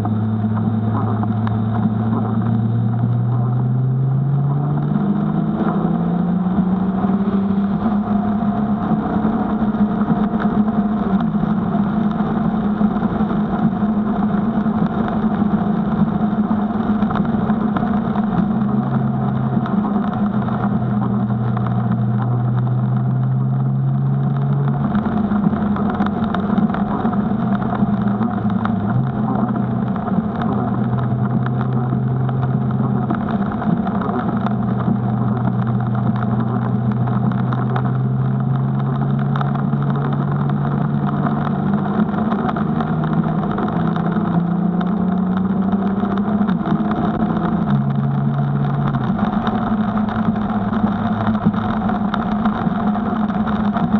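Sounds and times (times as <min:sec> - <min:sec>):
car engine from inside cabin: 0:00.0 - 0:53.9
rain and tyre spray hiss: 0:00.0 - 0:53.9.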